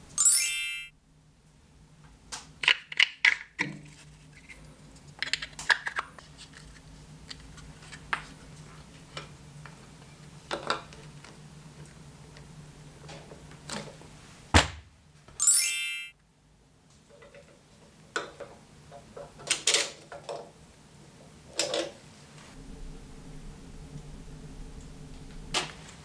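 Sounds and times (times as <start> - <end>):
short rising whine: 22.6 - 26.0.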